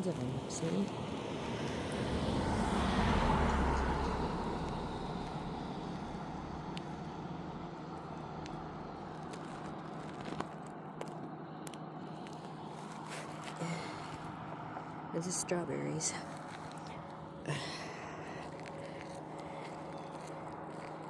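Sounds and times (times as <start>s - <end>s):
car passing: 0.0s - 9.1s.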